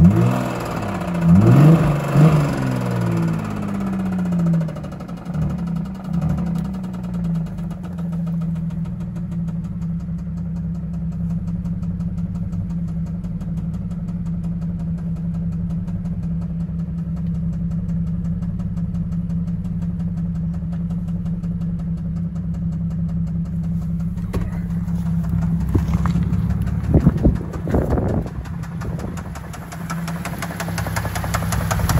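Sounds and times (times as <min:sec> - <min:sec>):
car engine idling: 0:00.0 - 0:31.9
fast even ticking: 0:26.4 - 0:31.9.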